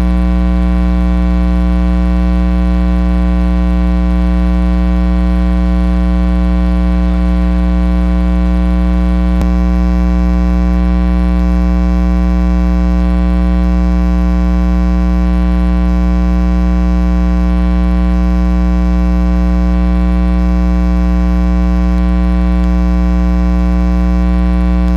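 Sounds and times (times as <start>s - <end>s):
electrical mains hum: 23.5s - 24.9s.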